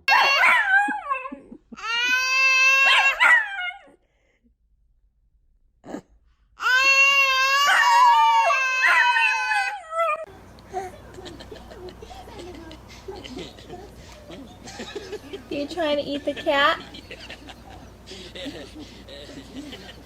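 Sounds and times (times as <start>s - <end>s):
dog howling: 0.0s - 3.9s, 6.8s - 10.3s.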